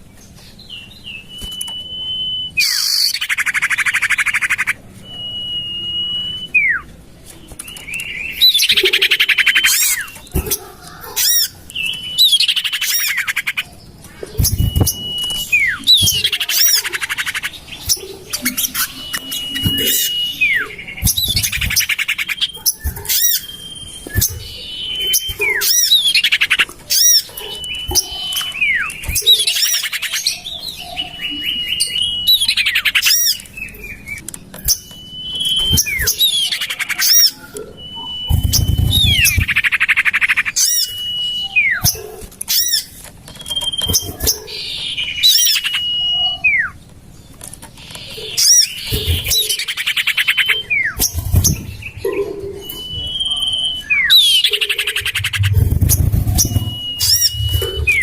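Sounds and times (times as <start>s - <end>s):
bird whistled calls: 0.8s - 46.8s, 47.8s - 58.0s
bird harsh chattering: 12.2s - 31.6s, 34.6s - 41.0s, 47.9s - 58.0s.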